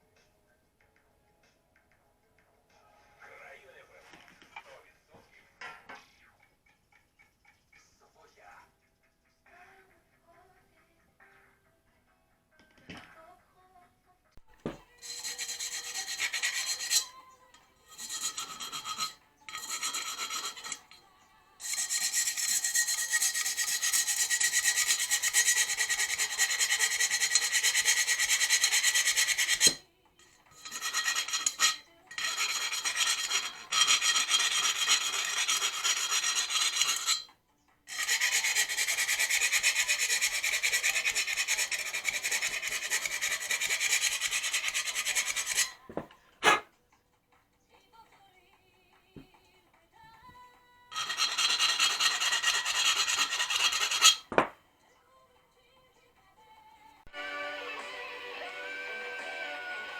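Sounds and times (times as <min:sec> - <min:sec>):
abrasive rasping on metal: 0:14.7 - 0:21.0, 0:21.6 - 0:37.3, 0:37.9 - 0:46.6, 0:50.9 - 0:54.5.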